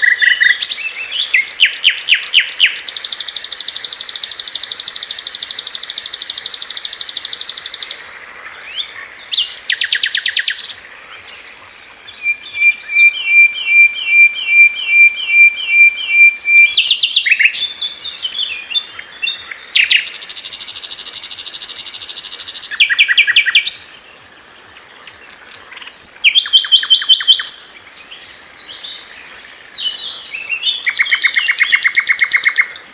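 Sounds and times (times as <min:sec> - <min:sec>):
flycatcher singing harsh song: 0:00.0 - 0:08.0, 0:12.2 - 0:23.8.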